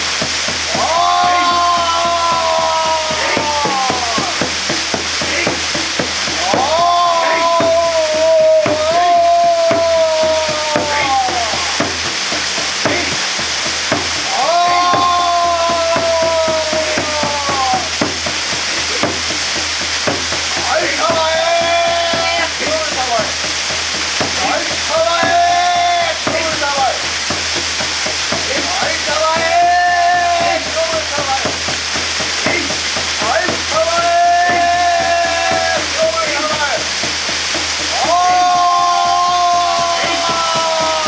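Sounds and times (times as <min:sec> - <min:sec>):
waterfall pouring and splashing: 0:00.0 - 0:41.0
person chanting high call: 0:00.7 - 0:12.0, 0:14.2 - 0:18.0, 0:20.5 - 0:23.6, 0:32.4 - 0:36.8, 0:38.0 - 0:41.0.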